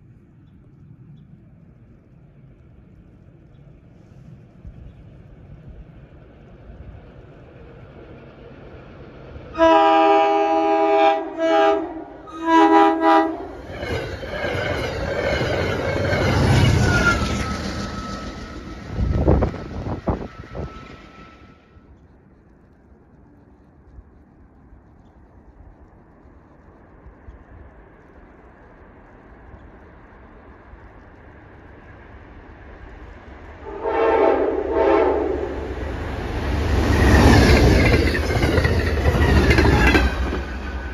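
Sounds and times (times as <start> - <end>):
train air horn blasts: 9.6 - 13.6, 33.6 - 35.7
train wheels rushing on rails: 12.4 - 40.9.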